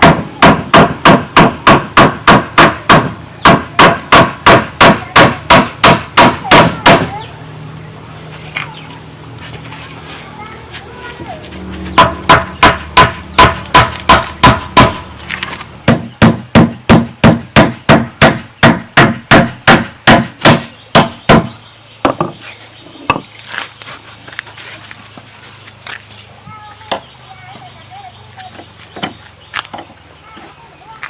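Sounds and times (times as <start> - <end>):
strikes on bamboo or wood: 0.0 - 7.2, 12.0 - 22.4.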